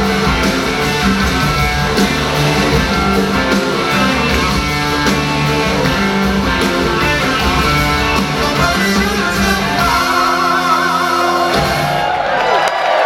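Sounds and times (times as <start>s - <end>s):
blues-rock band playing loudly: 0.0s - 12.4s
electric guitars: 0.0s - 12.5s.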